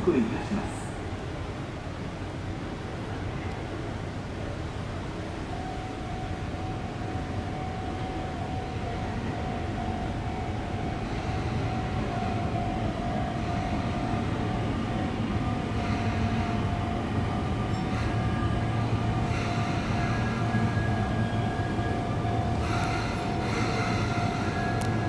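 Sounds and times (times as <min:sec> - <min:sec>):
electric train running noise: 0:00.0 - 0:25.0
steady high tone: 0:05.5 - 0:25.0.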